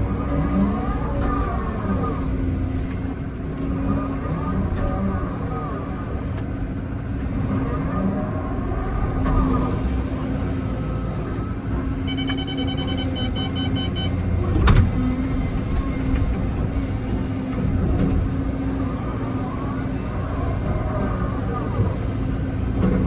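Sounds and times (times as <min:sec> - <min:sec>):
excavator engine and hydraulics: 0:00.0 - 0:23.0
rapid high-pitched beeping: 0:12.1 - 0:14.2.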